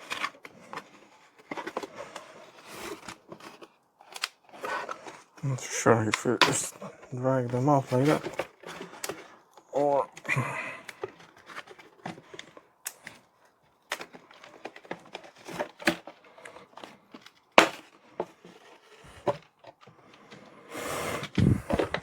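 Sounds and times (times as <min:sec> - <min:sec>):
toy packaging being handled: 0:00.0 - 0:22.0
plastic parts clicking and knocking: 0:07.9 - 0:20.5, 0:21.3 - 0:22.0.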